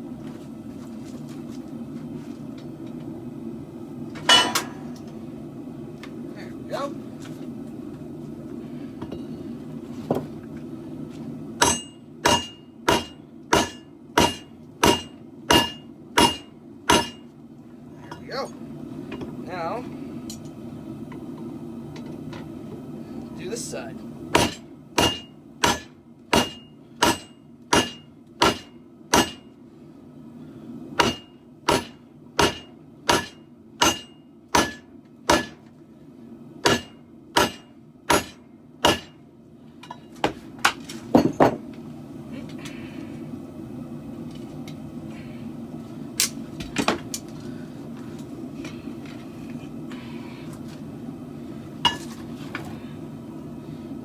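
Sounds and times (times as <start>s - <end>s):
hammer ringing on anvil: 11.6s - 17.2s, 24.4s - 29.5s, 31.0s - 35.6s, 36.7s - 39.2s.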